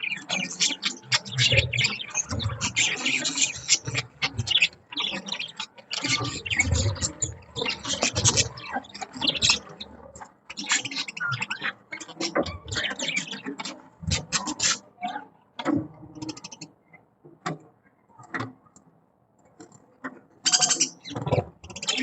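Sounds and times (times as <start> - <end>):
budgies chattering: 0.0 - 15.3, 16.2 - 16.7, 20.4 - 22.0.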